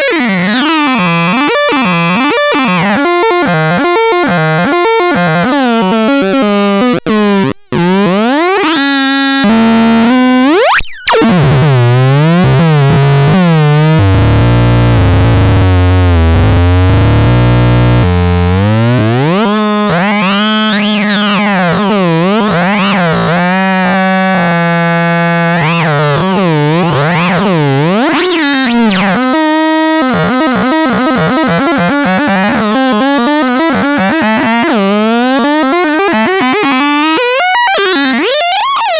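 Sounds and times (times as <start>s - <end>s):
synthesizer tones sliding in pitch: 24.5s - 38.5s.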